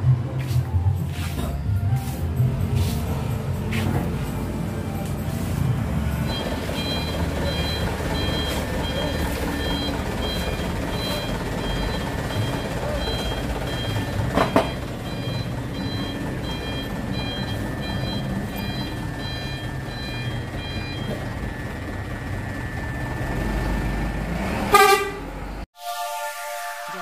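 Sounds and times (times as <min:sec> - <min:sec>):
traffic noise: 0:00.0 - 0:25.7
vehicle horn blast: 0:24.7 - 0:27.0.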